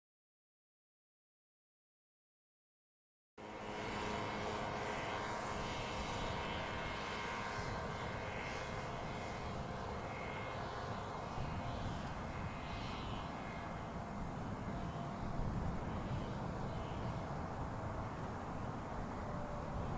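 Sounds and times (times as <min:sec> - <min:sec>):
jet engine drone: 0:03.4 - 0:19.9.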